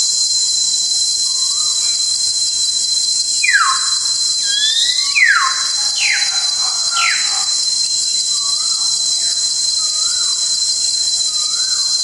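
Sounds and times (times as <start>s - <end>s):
bird whistled notes: 3.4s - 7.7s
insects shrilling: 3.4s - 8.0s.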